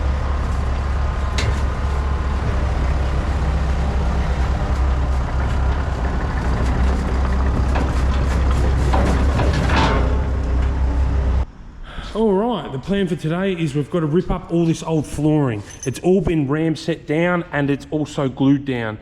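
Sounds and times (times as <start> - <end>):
heavy vehicle engine rumbling: 0.0 - 11.5.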